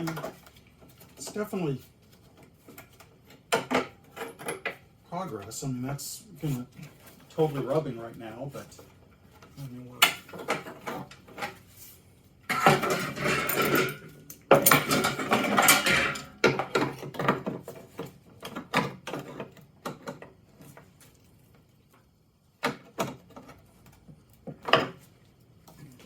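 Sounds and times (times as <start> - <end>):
metal panel scraping and rattling: 12.5 - 18.0.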